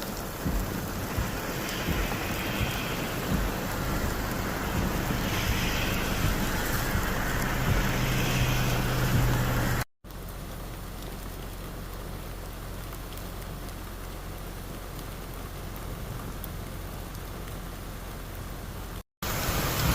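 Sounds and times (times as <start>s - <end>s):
low steady hum: 0.0s - 14.4s
heavy rain pouring: 0.0s - 19.9s.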